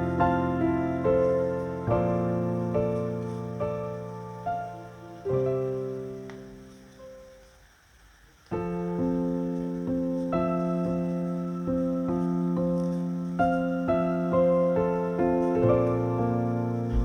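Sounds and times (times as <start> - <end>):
soft piano music: 0.0 - 7.8, 8.4 - 17.0.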